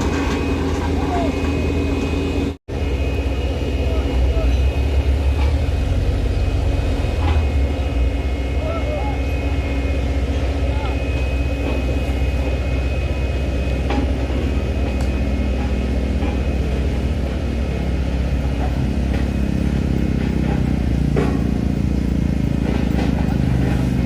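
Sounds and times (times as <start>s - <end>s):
truck engine droning: 0.0s - 24.0s.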